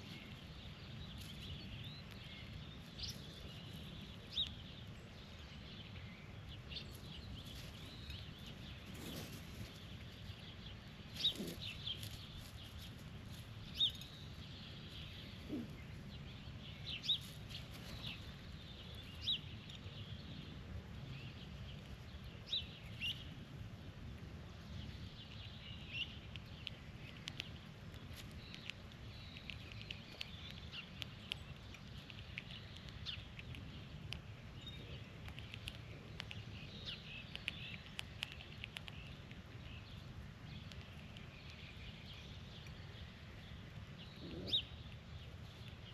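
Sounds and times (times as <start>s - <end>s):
birds chirping: 0.0s - 45.9s
low background rumble: 0.0s - 45.9s.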